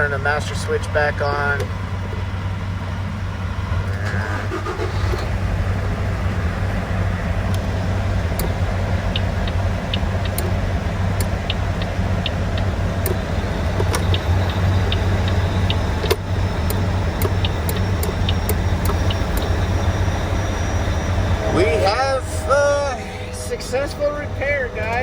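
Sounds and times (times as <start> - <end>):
diesel engine idling: 0.0 - 25.0
turn-signal flasher ticking: 6.0 - 25.0.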